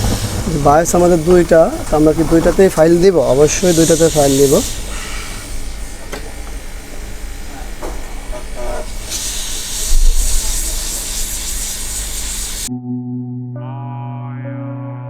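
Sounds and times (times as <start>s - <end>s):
hot-air gun hissing: 0.0s - 12.7s
music: 12.7s - 15.0s.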